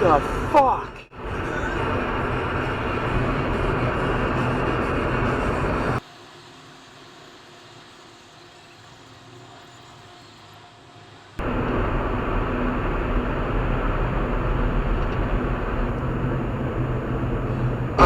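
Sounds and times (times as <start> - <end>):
car road and engine noise: 9.2 - 18.0.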